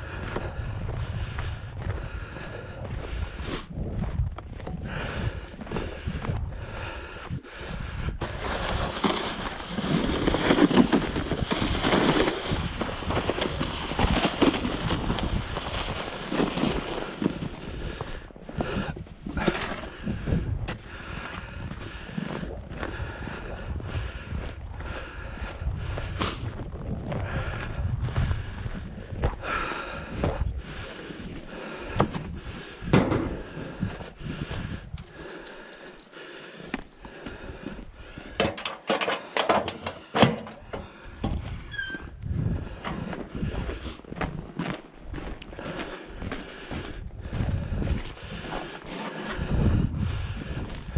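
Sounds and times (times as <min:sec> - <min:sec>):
snow shovel scraping snow: 0:08.2 - 0:17.5
footsteps crunching in snow: 0:08.2 - 0:17.8.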